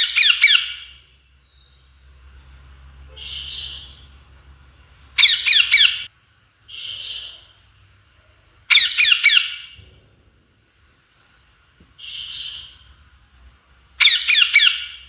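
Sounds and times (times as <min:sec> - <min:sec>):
parrot squawking: 0:00.0 - 0:01.0, 0:03.1 - 0:04.1, 0:05.2 - 0:06.1, 0:06.7 - 0:07.6, 0:08.7 - 0:09.8, 0:12.0 - 0:12.8, 0:14.0 - 0:15.0
soft breathy parrot calls: 0:06.7 - 0:07.6.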